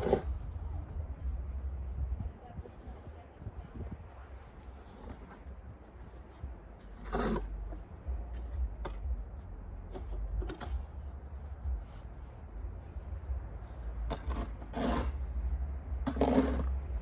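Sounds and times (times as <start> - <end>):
wind rumble on microphone: 0.0 - 17.0
snow shovel scraping snow: 6.1 - 7.6, 14.3 - 15.2, 16.1 - 16.7.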